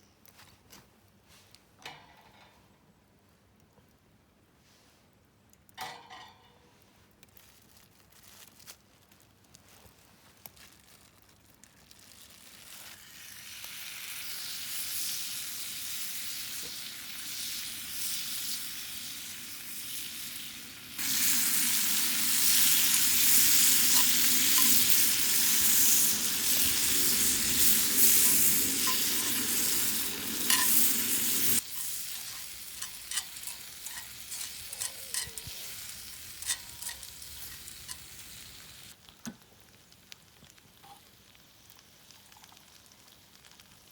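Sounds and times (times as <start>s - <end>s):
small crackles and pops: 6.8s - 43.9s
food sizzling in a pan: 12.0s - 43.9s.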